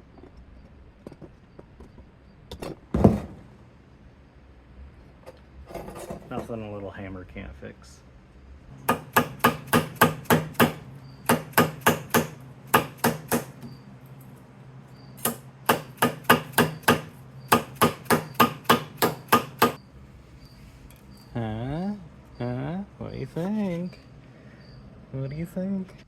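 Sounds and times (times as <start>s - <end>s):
hammer striking metal gasket: 8.9s - 13.7s, 15.2s - 19.8s.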